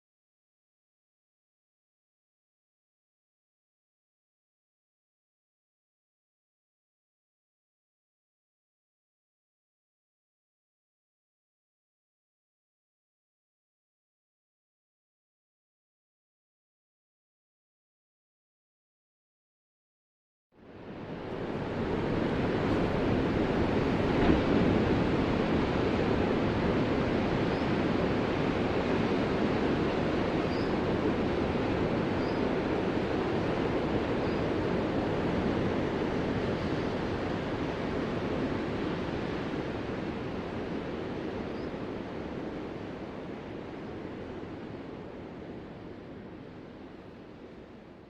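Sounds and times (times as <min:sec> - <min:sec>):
ocean waves breaking: 0:20.7 - 0:47.1.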